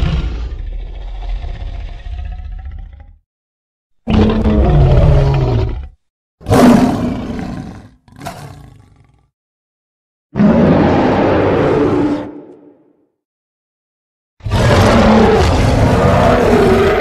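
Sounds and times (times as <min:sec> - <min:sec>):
monster roars: 0:00.0 - 0:03.1, 0:04.1 - 0:08.7, 0:10.4 - 0:12.8, 0:14.4 - 0:17.0.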